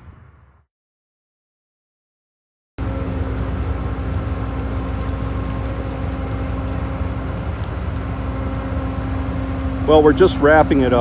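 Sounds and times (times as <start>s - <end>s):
vehicle engine running: 2.8s - 11.0s.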